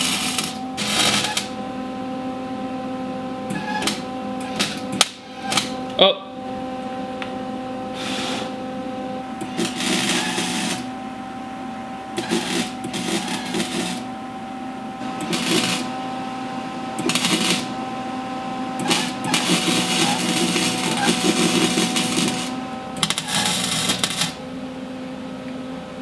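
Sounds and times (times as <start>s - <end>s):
electric welder crackling sizzle: 0.0s - 1.6s, 3.5s - 5.8s, 9.4s - 10.9s, 12.2s - 14.2s, 15.0s - 16.1s, 16.9s - 17.9s, 18.8s - 24.4s
welder hum: 0.0s - 6.0s, 6.6s - 11.2s, 11.8s - 14.2s, 14.9s - 24.7s.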